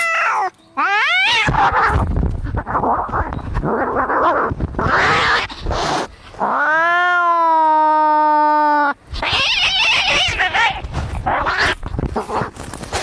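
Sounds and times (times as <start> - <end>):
cat yowling: 0.0 - 2.0, 3.8 - 5.6, 6.5 - 11.8
cats hissing and screeching: 0.0 - 13.0.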